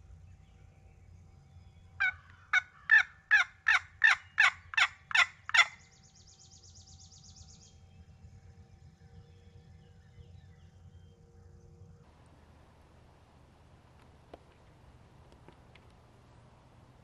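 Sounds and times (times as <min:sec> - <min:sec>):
turkey yelping: 0:02.0 - 0:05.8.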